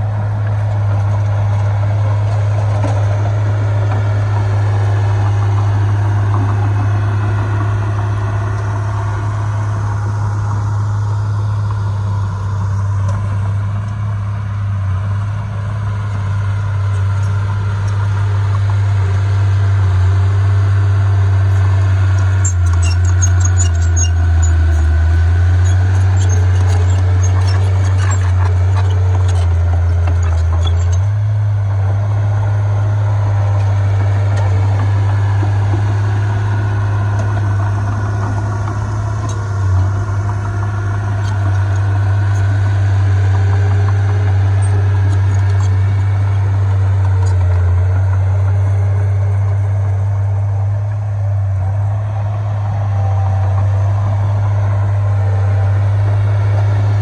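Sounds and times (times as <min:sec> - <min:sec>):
heavy diesel machinery droning: 0:00.0 - 0:57.0.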